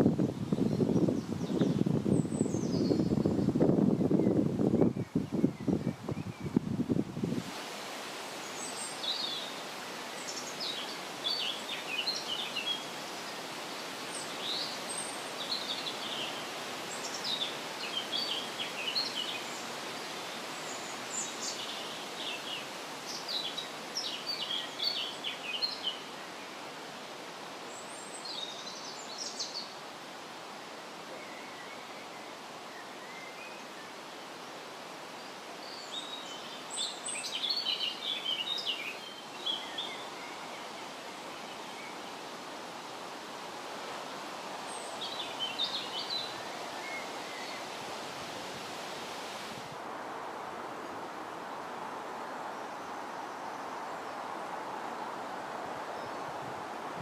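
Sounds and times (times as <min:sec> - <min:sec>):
steady outdoor hiss: 0:00.0 - 0:57.0
songbirds chirping and trilling: 0:07.8 - 0:26.6.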